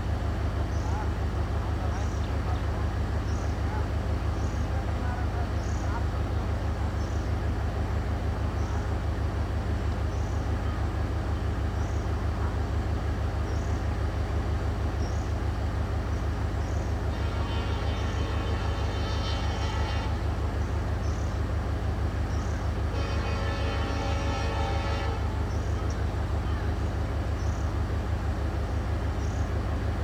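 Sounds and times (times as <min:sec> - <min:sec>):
diesel train engine idling: 0:00.0 - 0:30.0
train horn: 0:16.8 - 0:21.4, 0:22.3 - 0:26.9.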